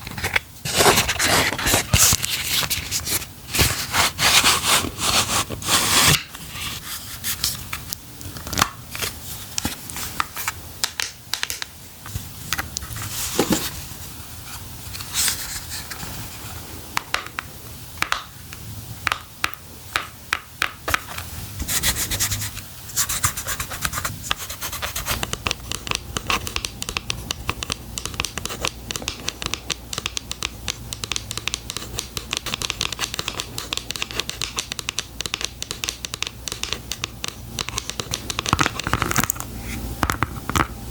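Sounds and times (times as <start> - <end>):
fingernails scratching packaging: 0.0 - 7.6.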